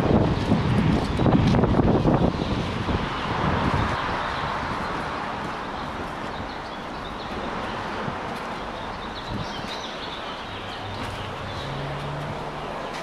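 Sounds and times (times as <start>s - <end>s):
outdoor background noise: 0.0s - 13.0s
small birds chirping: 3.8s - 13.0s.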